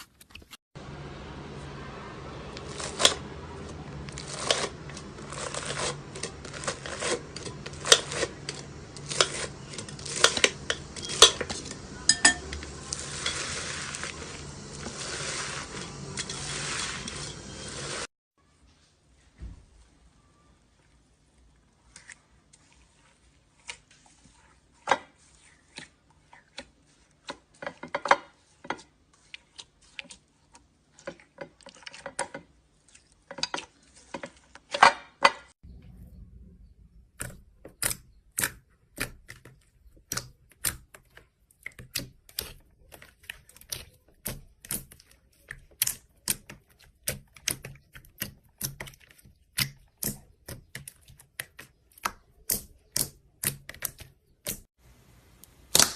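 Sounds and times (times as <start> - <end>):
slime clicking and popping: 55.7 - 55.9.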